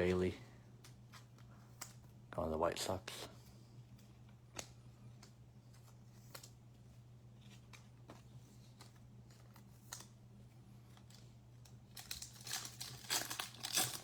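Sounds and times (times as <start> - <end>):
trading cards being handled: 3.4 - 14.0.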